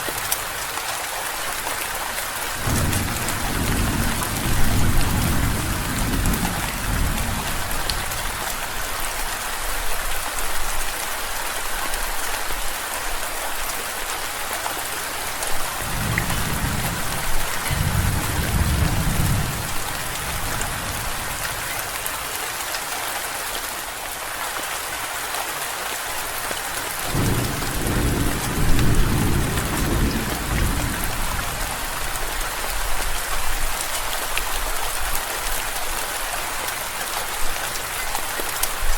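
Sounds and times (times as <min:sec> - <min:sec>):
steady rainfall: 0:00.0 - 0:38.9
rolling thunder: 0:02.6 - 0:08.2, 0:15.8 - 0:21.4, 0:27.1 - 0:31.7.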